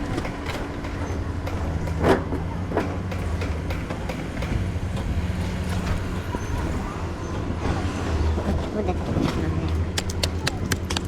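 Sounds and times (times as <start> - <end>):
sharp knocks: 10.0 - 11.0.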